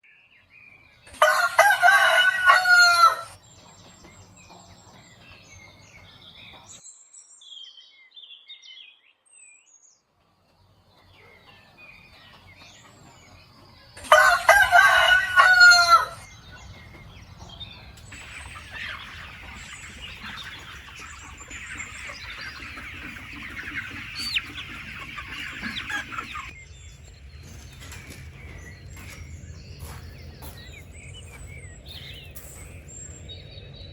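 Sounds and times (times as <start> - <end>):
rooster crowing: 1.1 - 3.4, 14.0 - 16.2.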